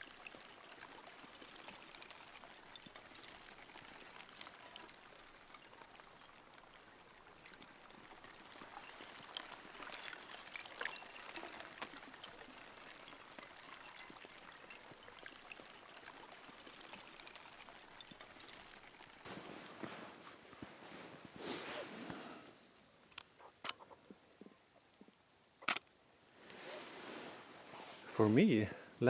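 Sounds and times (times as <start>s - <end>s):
trickling water: 0.0s - 25.3s
small clicks: 23.1s - 24.0s, 25.0s - 25.9s.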